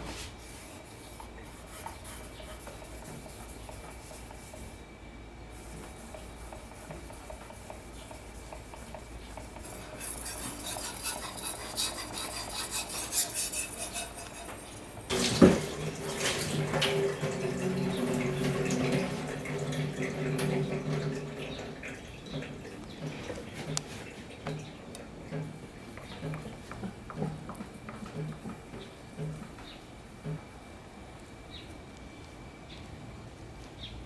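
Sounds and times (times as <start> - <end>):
tap water running: 8.4 - 29.6
knife scraping on whetstone: 9.6 - 15.1.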